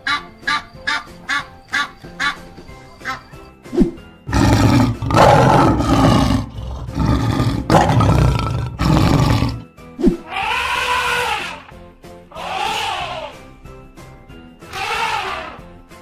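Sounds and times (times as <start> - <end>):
background music: 0.0 - 16.0
lion roaring: 4.3 - 9.6.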